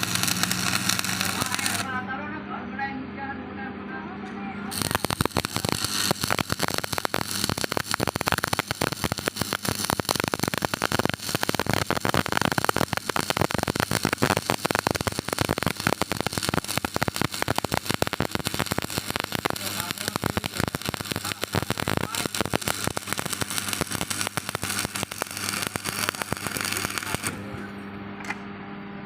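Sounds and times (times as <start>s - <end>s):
welding arc crackling: 0.0s - 2.0s, 4.7s - 27.6s.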